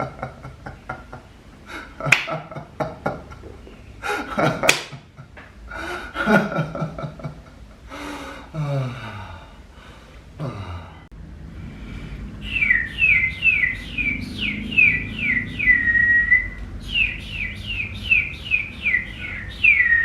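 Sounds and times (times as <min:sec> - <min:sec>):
person making wordless vocal sounds: 0:10.4 - 0:11.1.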